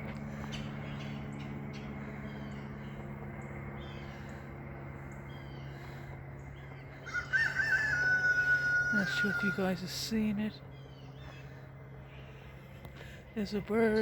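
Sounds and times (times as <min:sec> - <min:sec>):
aircraft drone overhead: 0:00.0 - 0:14.0
small birds chirping: 0:00.0 - 0:14.0
rooster crowing: 0:07.0 - 0:09.7.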